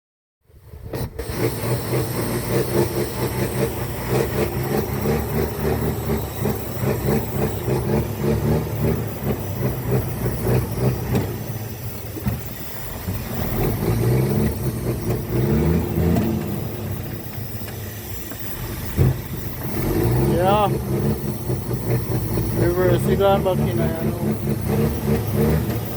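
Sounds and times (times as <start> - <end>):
truck diesel engine running: 0.6 - 25.9.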